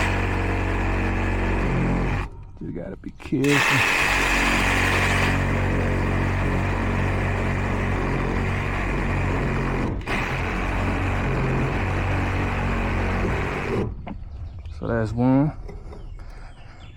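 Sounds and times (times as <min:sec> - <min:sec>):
reciprocating saw cutting copper tubing: 0:00.0 - 0:02.3, 0:03.4 - 0:14.0.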